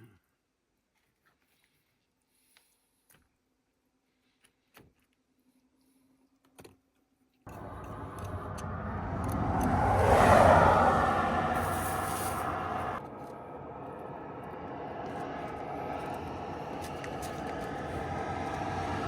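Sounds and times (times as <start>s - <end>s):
vehicle passing on highway: 7.5s - 19.0s.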